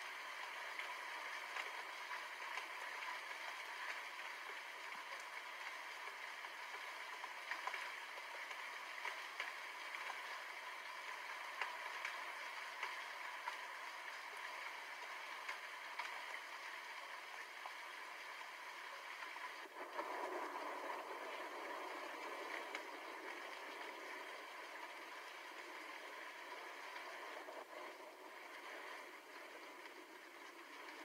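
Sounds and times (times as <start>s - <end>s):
raindrops ticking on a surface: 0.0s - 31.0s
steady rain hissing: 0.0s - 31.0s.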